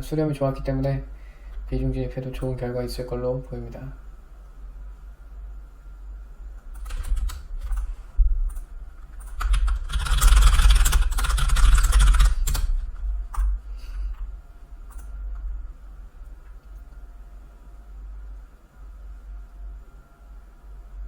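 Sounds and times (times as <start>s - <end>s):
computer keyboard typing: 6.8s - 7.9s, 8.5s - 13.5s.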